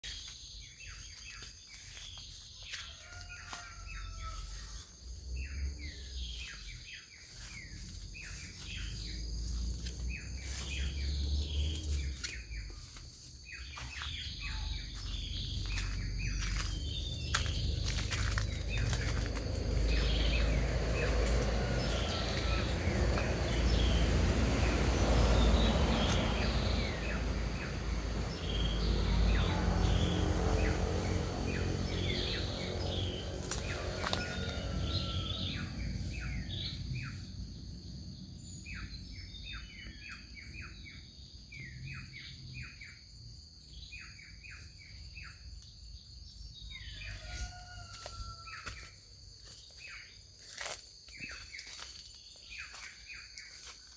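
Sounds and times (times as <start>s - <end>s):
birds chirping: 0.0s - 48.8s
loud low rumble: 13.5s - 38.4s.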